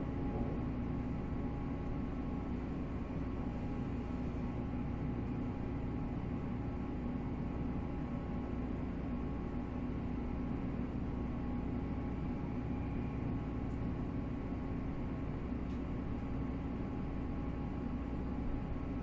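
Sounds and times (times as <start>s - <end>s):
wheels rumbling on rail: 0.0s - 4.6s.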